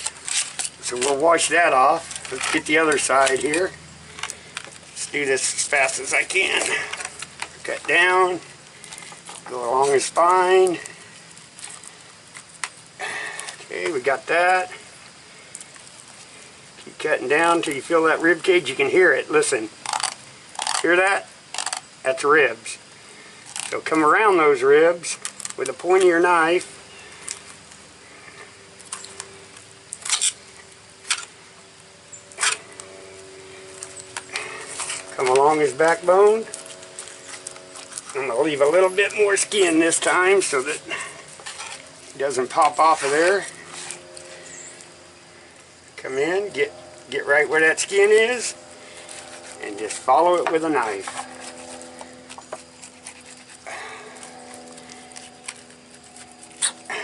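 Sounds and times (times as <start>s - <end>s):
faint steady hum: 0.0s - 57.0s
knife scraping fish bones: 51.0s - 56.8s.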